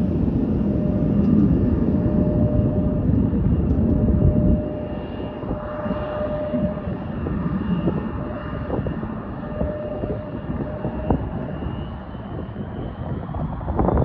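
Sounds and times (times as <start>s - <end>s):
engine whine: 0.0s - 14.0s
jet engines rumbling: 0.0s - 14.0s.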